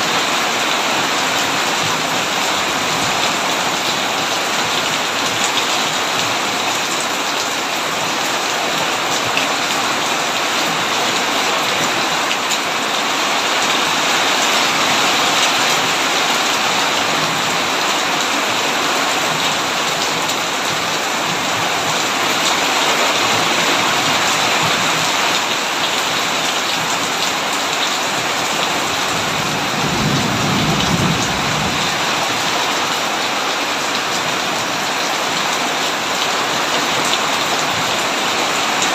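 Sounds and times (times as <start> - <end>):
heavy rain on a tin roof: 0.0 - 38.9
low thunder rumble: 29.1 - 32.5.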